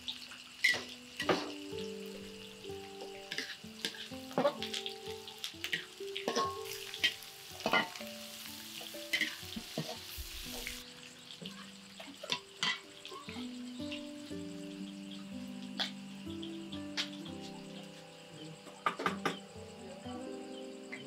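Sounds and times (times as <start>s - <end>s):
paste sizzling in hot oil: 0.0s - 18.6s
metal spatula scraping a wok: 3.3s - 4.6s.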